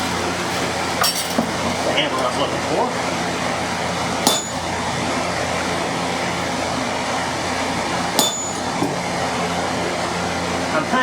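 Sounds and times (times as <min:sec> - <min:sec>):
steady hum: 0:00.0 - 0:11.0
hammer striking metal: 0:04.2 - 0:04.8, 0:08.2 - 0:09.0.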